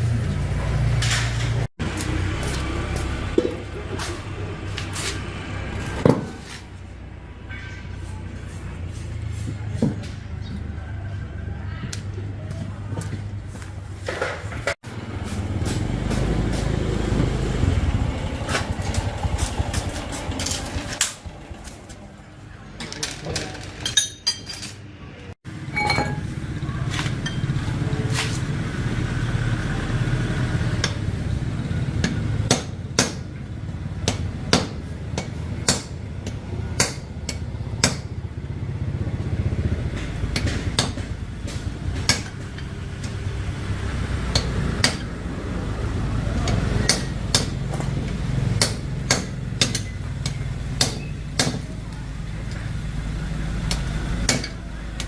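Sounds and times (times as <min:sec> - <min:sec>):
hand tools tapping hard parts: 0:39.9 - 0:43.2, 0:46.3 - 0:51.9.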